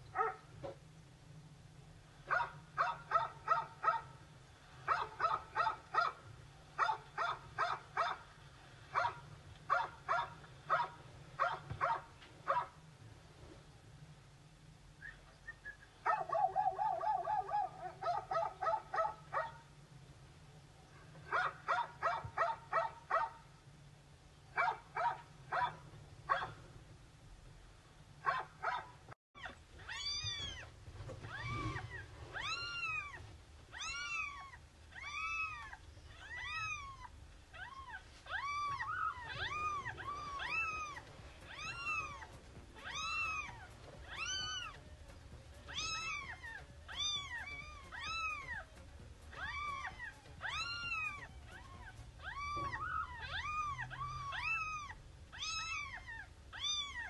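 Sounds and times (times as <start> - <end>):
dog barking: 0.1 - 0.5, 2.3 - 4.2, 4.9 - 6.2, 6.8 - 8.2, 8.9 - 12.8, 16.0 - 19.6, 21.0 - 23.4, 24.6 - 26.6, 28.2 - 29.0
cat meowing: 29.4 - 30.7, 31.3 - 44.8, 45.7 - 48.7, 49.3 - 57.0.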